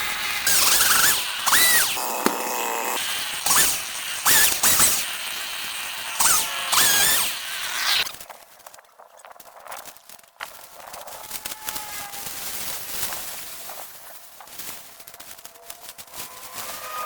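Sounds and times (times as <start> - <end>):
chainsaw revving: 0.0 - 8.1.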